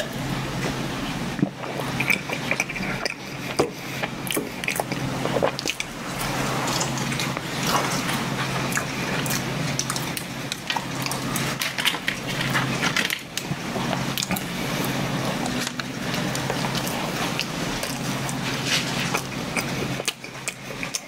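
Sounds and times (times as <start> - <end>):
steady low hum: 0.0 - 21.0
person chewing with lip smacks: 1.4 - 5.9, 15.6 - 21.0.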